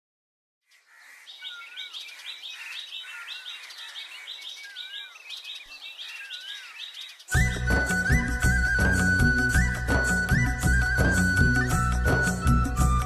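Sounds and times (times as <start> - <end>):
birds chirping: 0.6 - 13.0
bird dipping and rising whistle: 7.3 - 13.0.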